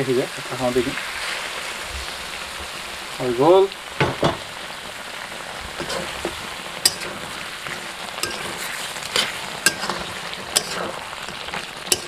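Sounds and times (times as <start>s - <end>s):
curry sizzling: 0.0s - 12.0s
metal spatula striking pan: 5.8s - 7.4s, 8.2s - 12.0s.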